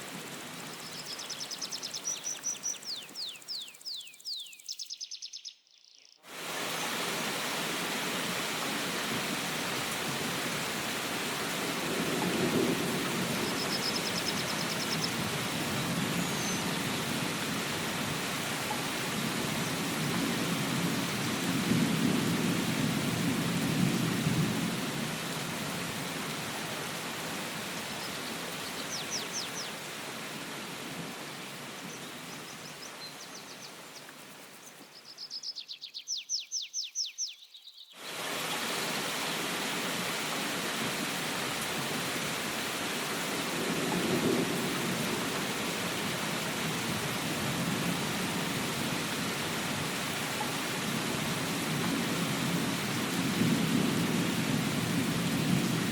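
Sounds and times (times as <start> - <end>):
steady rain: 0.0 - 4.4, 6.3 - 35.6, 38.0 - 55.9
bird chirping: 0.8 - 6.2, 32.3 - 38.0.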